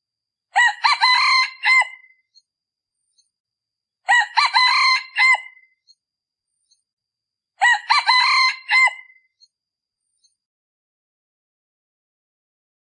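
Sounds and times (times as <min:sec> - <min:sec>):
rooster crowing: 0:00.6 - 0:02.1, 0:04.1 - 0:05.6, 0:07.6 - 0:09.2.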